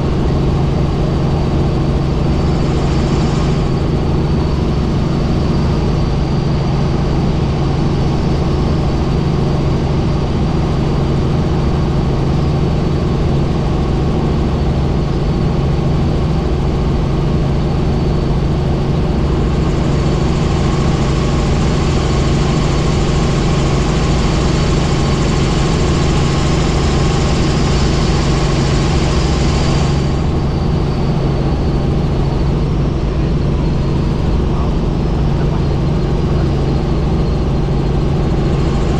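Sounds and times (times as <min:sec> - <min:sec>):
helicopter engine and rotor drone: 0:00.0 - 0:38.9.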